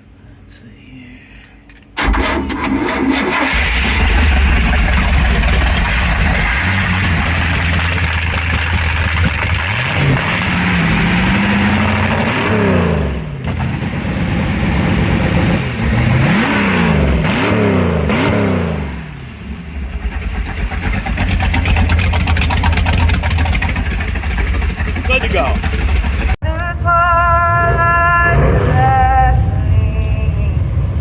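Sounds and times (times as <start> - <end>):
boat engine revving and idling: 2.0 - 31.0.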